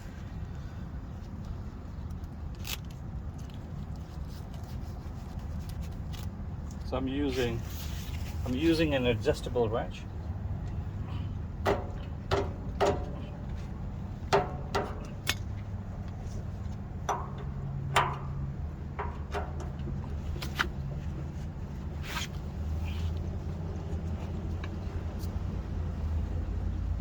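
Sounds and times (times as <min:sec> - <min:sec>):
steady low rumble: 0:00.0 - 0:27.0
wrench clinking against metal nut: 0:17.1 - 0:20.0.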